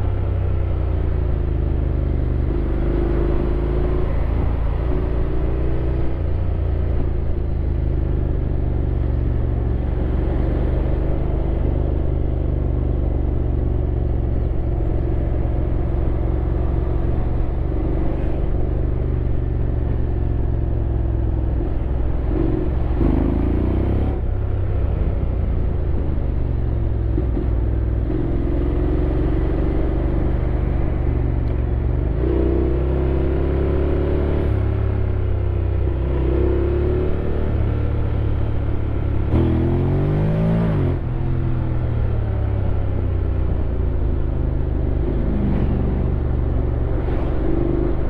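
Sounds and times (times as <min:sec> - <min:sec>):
wind and road noise: 0:00.0 - 0:48.0
motorcycle engine rumbling: 0:06.2 - 0:32.2.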